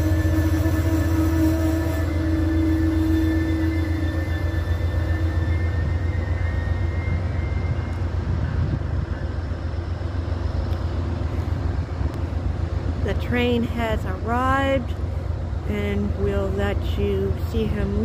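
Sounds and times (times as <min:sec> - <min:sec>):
high wheel squeal: 0:00.0 - 0:09.9
train rumbling on rails: 0:00.0 - 0:18.0.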